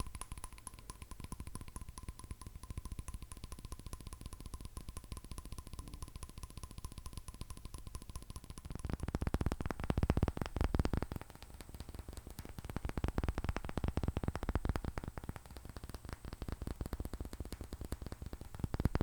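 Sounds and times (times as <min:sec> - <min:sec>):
fingernails tapping on hard surface: 0:00.0 - 0:08.8.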